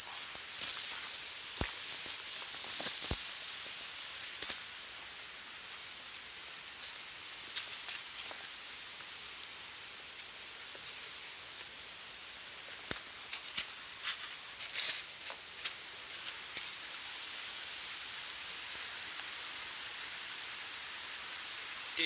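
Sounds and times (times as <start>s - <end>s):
footsteps on stony ground: 0.0s - 3.3s
steady rushing hiss: 0.0s - 22.0s.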